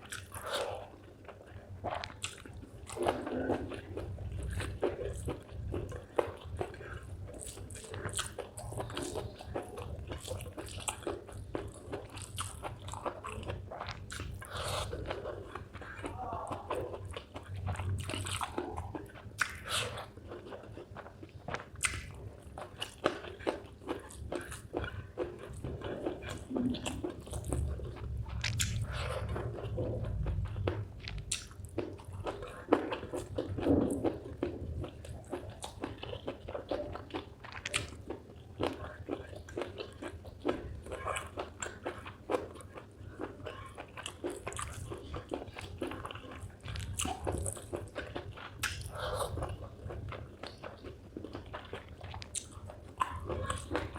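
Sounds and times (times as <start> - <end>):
chewing and crunching: 0.0 - 53.9.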